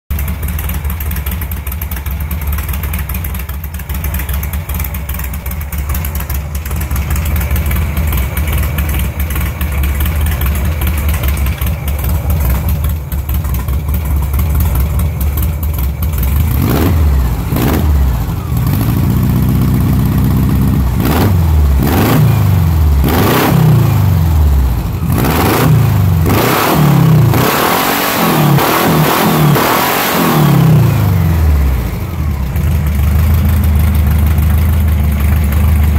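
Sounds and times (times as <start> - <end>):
car engine idling and revving: 0.1 - 35.9.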